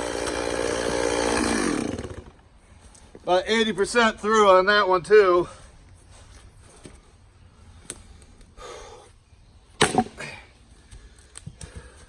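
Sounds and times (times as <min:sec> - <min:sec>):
firewood clicks and rustles: 0:02.0 - 0:04.5, 0:05.4 - 0:08.6, 0:10.0 - 0:12.0.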